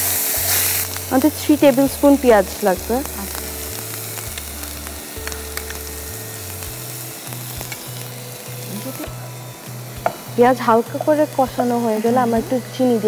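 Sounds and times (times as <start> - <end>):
onion sizzling in a pan: 0.0 - 13.0.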